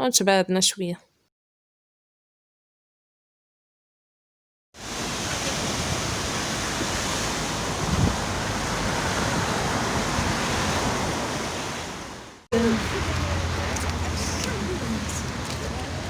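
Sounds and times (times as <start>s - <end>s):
sea surf washing: 4.8s - 16.0s
wind buffeting microphone: 5.1s - 16.0s.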